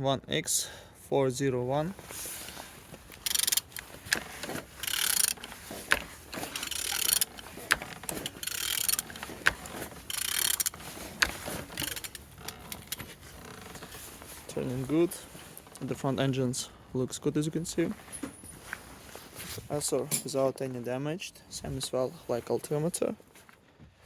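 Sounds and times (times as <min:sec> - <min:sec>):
engine turning over rattling: 0:02.0 - 0:15.0.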